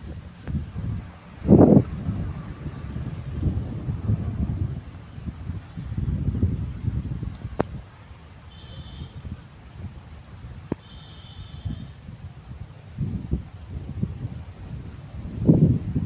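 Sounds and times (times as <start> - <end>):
low rumble: 0.0 - 7.4
insects chirping: 0.0 - 16.0.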